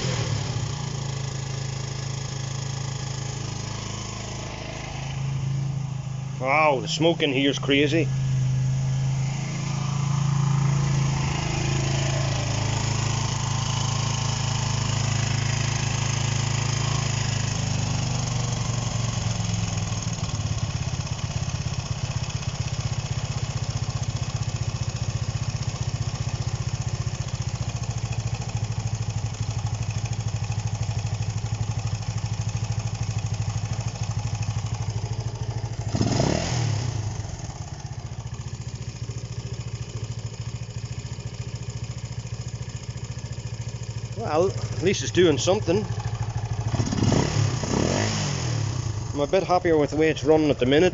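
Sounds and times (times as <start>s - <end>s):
motorcycle engine idling: 0.0s - 50.9s.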